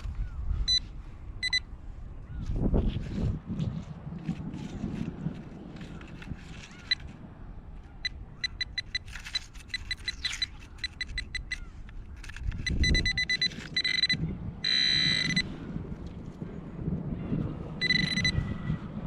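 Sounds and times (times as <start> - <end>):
metal detector beeps: 0.7 - 1.7, 6.8 - 7.1, 8.0 - 15.5, 17.8 - 18.4.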